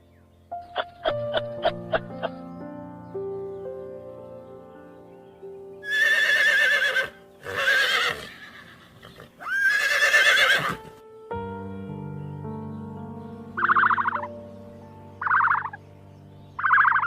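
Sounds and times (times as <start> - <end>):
soft background music: 0.0 - 17.0
horse whinnying: 5.8 - 10.9.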